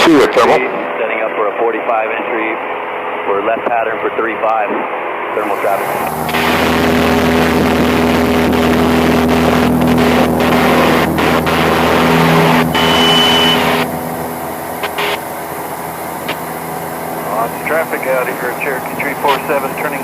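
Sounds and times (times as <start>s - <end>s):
airplane engine droning: 0.0s - 20.0s
high steady beep: 12.1s - 13.9s, 14.8s - 15.2s.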